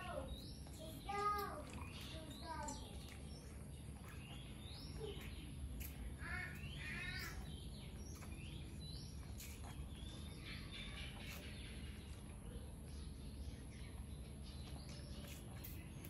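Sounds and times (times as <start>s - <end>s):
birds chirping faintly: 0.0s - 16.0s
steady low hum: 0.0s - 16.0s.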